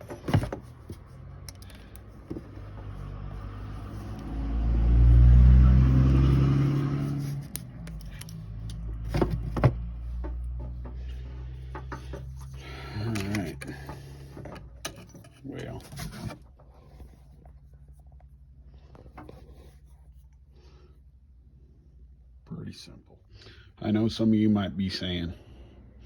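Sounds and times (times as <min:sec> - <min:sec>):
vehicle driving past: 0:01.1 - 0:12.5.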